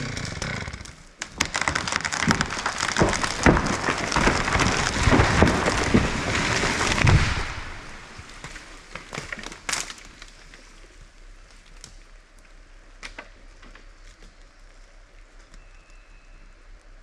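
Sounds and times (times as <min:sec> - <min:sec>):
tree branches snapping: 0:01.2 - 0:10.6.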